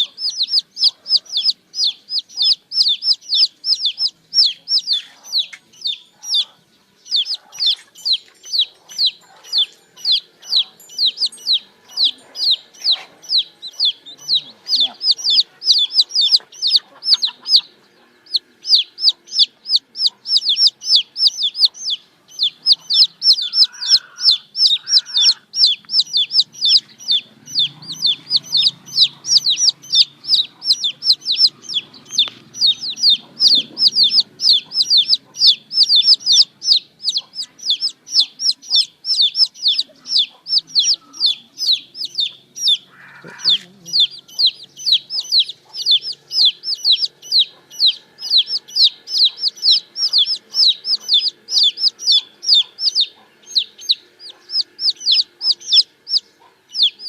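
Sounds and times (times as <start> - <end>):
baby chicks peeping: 0.0 - 57.0.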